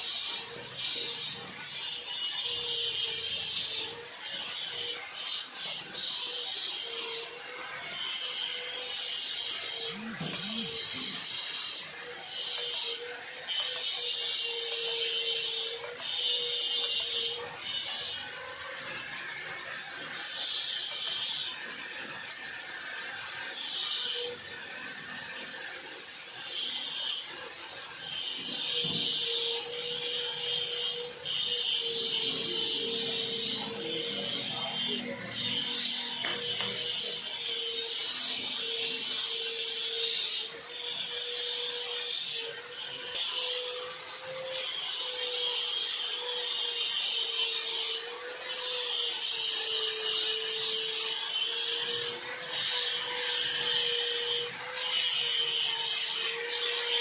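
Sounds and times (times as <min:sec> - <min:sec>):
power tool high whine: 0:00.0 - 0:57.0.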